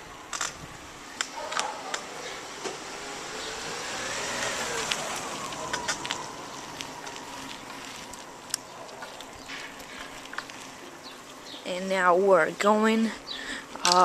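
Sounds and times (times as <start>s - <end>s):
wind and road rush: 0.0s - 14.0s
passing vehicle engine: 0.8s - 11.5s
bicycle rattling clicks: 4.8s - 10.7s.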